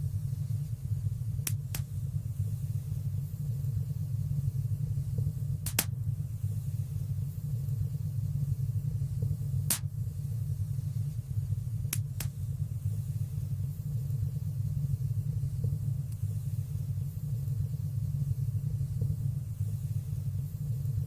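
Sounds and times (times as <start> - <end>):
fire burning with low rumble: 0.0 - 21.0
sharp fire crackles: 5.6 - 5.9.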